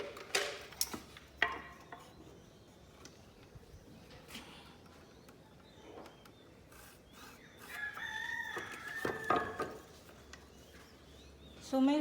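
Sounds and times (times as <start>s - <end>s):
rooster crowing: 7.7s - 9.6s.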